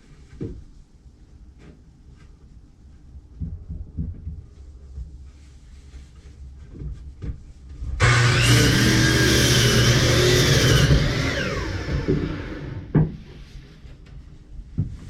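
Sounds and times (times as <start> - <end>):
electric power saw running: 8.0 - 12.9.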